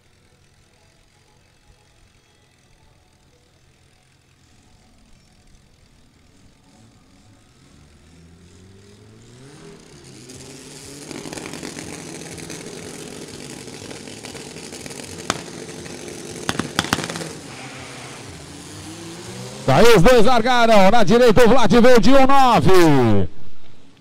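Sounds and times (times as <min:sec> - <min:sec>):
drag car engines revving: 0:00.0 - 0:23.2
sharp pops: 0:14.3 - 0:18.1.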